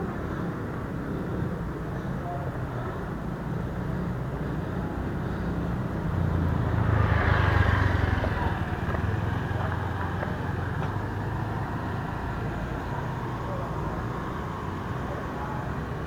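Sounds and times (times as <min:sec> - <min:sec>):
road traffic: 0:00.0 - 0:16.0
vehicle passing close: 0:05.7 - 0:12.4.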